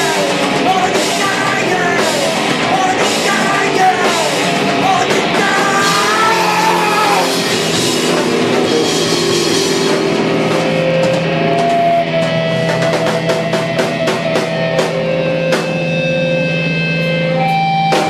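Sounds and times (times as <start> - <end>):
person singing: 0.0 - 7.8
punk rock band playing: 0.0 - 18.0.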